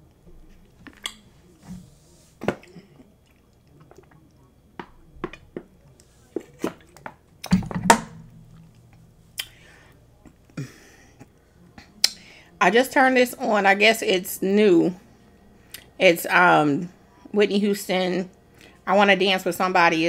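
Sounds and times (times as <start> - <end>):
wet chewing and lip smacks: 2.6 - 5.4.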